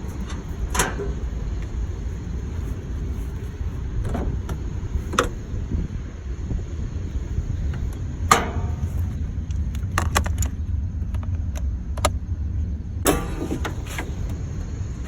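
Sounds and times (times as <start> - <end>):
metallic clatter: 0.0 - 5.5, 7.6 - 10.6, 13.1 - 15.0
vehicle engine idling: 0.0 - 15.0.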